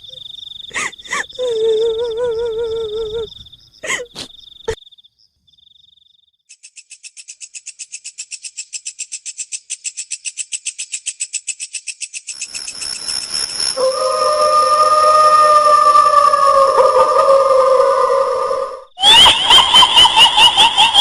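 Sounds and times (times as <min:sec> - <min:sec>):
sweeping squeals: 0:12.7 - 0:20.1
high whine: 0:13.0 - 0:19.8.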